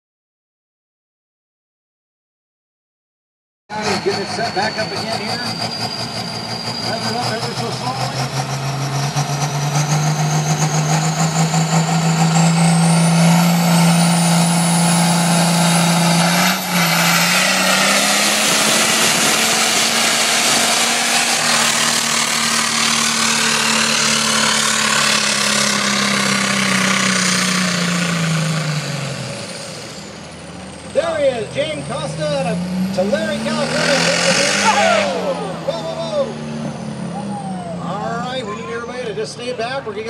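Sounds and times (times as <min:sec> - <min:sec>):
high whine: 0:03.7 - 0:27.2
tractor engine at high revs: 0:03.7 - 0:40.0.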